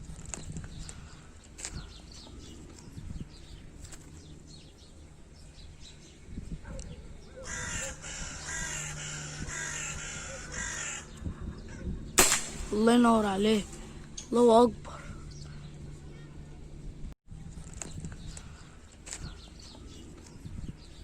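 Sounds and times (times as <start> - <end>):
flock of birds calling: 7.2 - 12.2.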